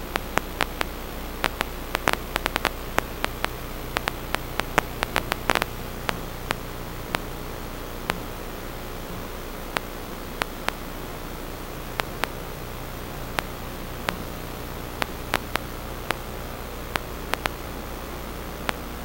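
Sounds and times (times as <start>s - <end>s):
faint low hum: 0.0s - 19.0s
static hiss: 0.0s - 19.0s
sharp clicks: 0.2s - 7.3s, 9.7s - 10.8s, 12.0s - 12.4s, 13.4s - 16.3s, 16.9s - 17.6s.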